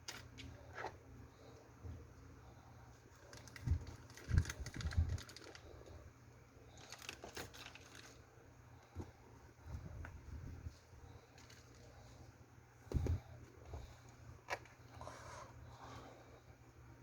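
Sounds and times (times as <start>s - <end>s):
soft thumps: 12.8s - 13.9s.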